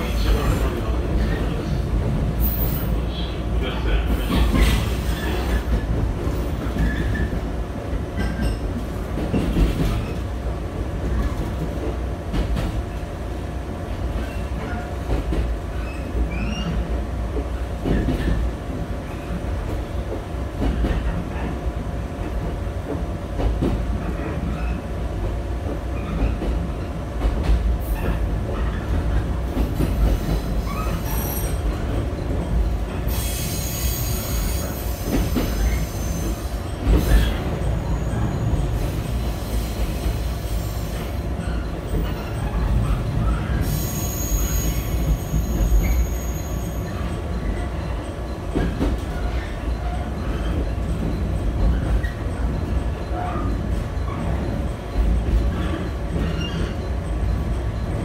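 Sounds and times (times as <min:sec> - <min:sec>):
train wheels rumbling on rail: 0:00.0 - 0:58.0
high wheel squeals: 0:33.1 - 0:47.9.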